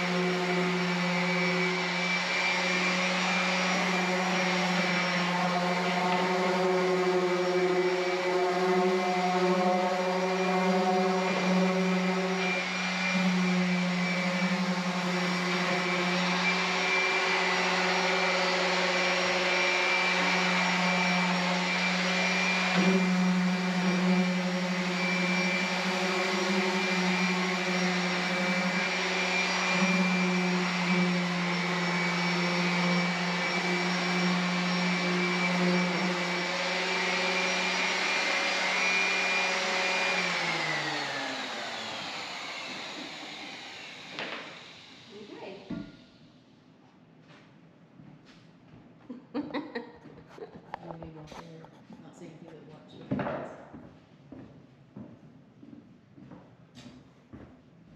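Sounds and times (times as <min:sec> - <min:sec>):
motor humming and winding down: 0:00.0 - 0:45.9.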